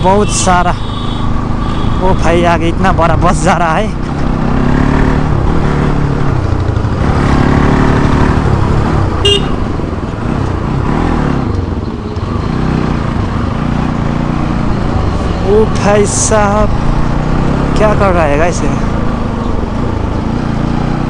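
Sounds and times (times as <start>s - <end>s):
vehicle horn toot: 0.0s - 2.5s, 9.2s - 9.7s
motorcycle engine revving: 0.0s - 21.0s.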